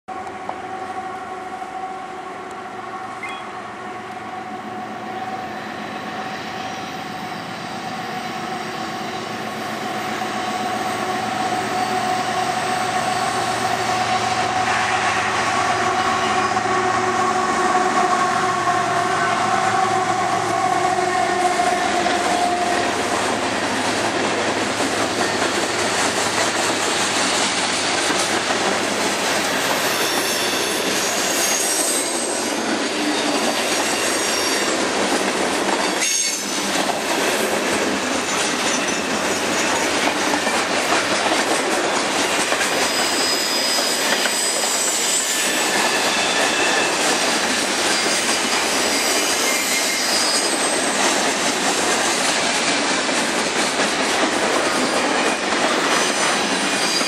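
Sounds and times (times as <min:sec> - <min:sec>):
diesel locomotives passing: 0:00.1 - 0:57.0
steady locomotive whine: 0:00.1 - 0:57.0
train wheels clattering on rails: 0:21.4 - 0:57.0.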